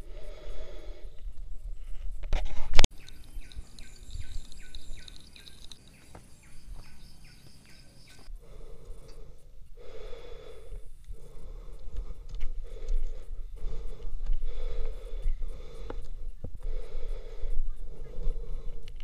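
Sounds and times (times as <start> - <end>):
heavy breathing: 0.0 - 1.4, 8.2 - 19.0
bird chirping: 2.9 - 9.4.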